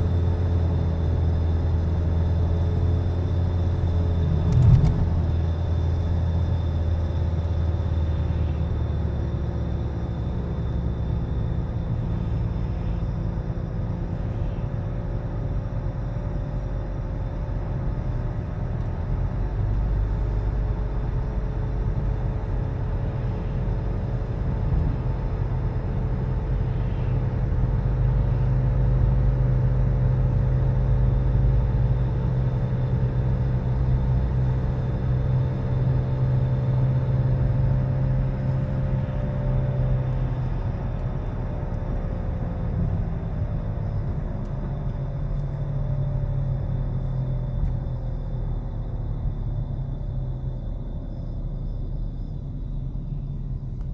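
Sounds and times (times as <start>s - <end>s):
car road rumble: 0.0s - 53.9s
wheel bearing humming drone: 0.0s - 53.9s.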